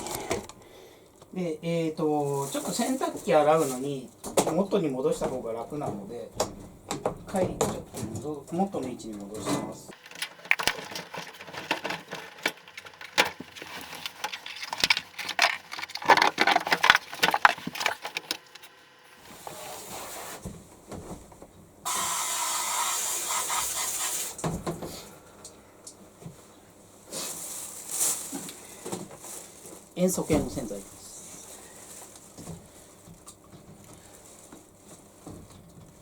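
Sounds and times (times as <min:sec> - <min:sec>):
machine parts clattering: 0:09.9 - 0:18.8
steady hiss: 0:21.9 - 0:25.1.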